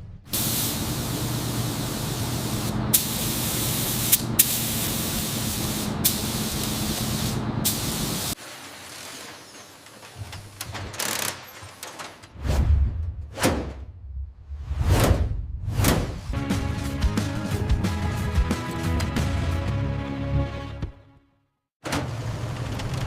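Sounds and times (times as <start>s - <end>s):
compressed air spraying: 0.3s - 8.4s.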